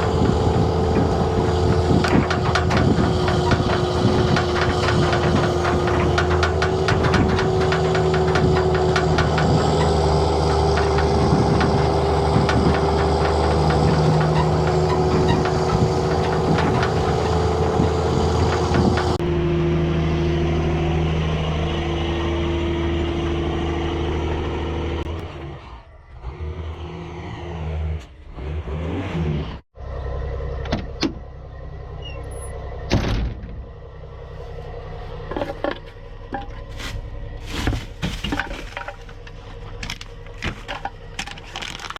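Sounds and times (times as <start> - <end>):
sharp knocks: 0.0 - 19.2
diesel truck engine drone: 0.0 - 41.9.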